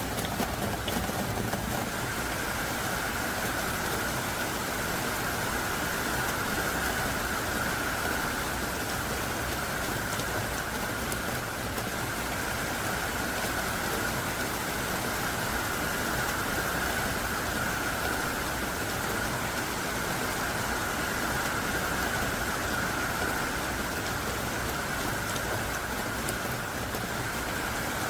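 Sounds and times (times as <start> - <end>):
faint raindrop ticks: 0.0 - 2.2, 6.2 - 17.2, 20.6 - 28.0
heavy rain downpour: 0.0 - 28.0.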